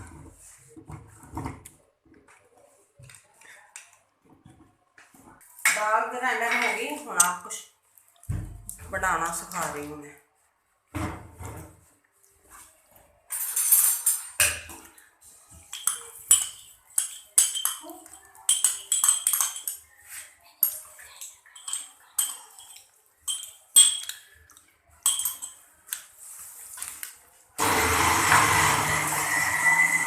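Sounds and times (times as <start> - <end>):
metal spoon clinking on utensils: 6.4 - 7.6, 13.3 - 14.8, 15.6 - 26.1
mixer-grinder running: 27.6 - 30.0.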